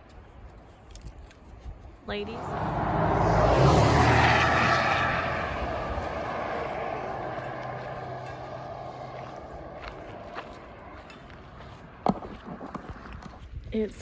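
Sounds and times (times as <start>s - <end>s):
aircraft engine passing overhead: 2.2s - 12.0s.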